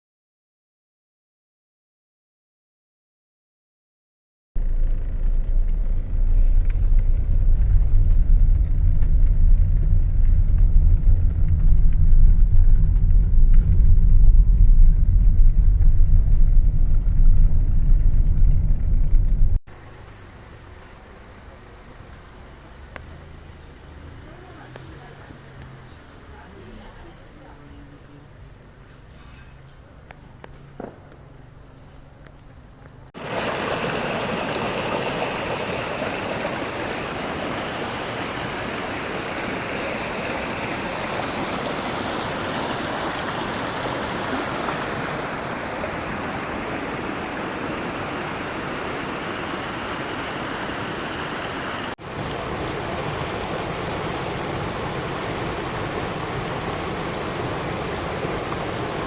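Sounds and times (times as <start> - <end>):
fast-flowing water rushing: 33.2 - 59.0.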